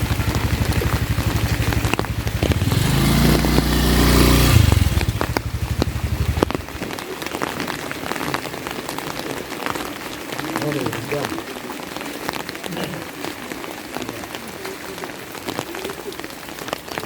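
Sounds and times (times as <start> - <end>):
motorcycle passing by: 0.0 - 6.8
steady rain: 0.0 - 17.0.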